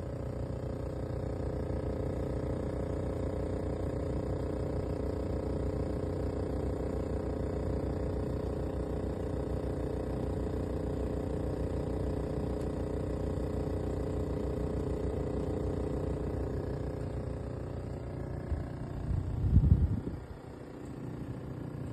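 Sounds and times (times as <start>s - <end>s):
air conditioner humming: 13.9s - 21.9s.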